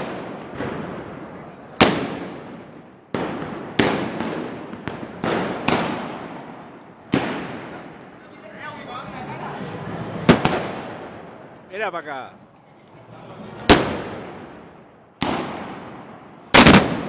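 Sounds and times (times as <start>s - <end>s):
loud gunpowder blasts echoing: 0.0s - 8.2s, 10.3s - 11.6s, 13.7s - 17.0s.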